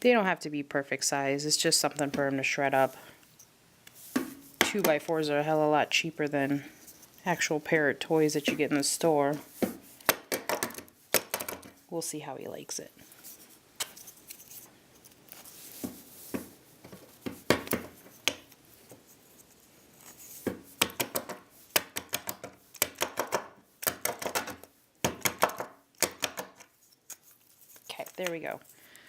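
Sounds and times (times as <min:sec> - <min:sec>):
wooden blocks clicking and rattling: 0:20.8 - 0:26.7.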